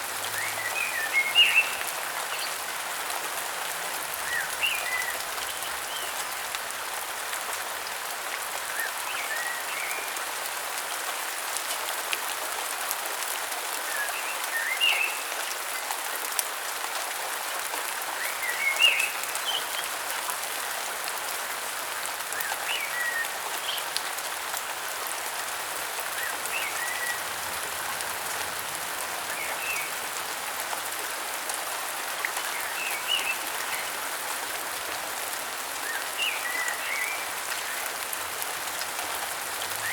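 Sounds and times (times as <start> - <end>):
raindrops pattering on leaves: 0.0 - 39.9
rain hissing: 35.0 - 39.9.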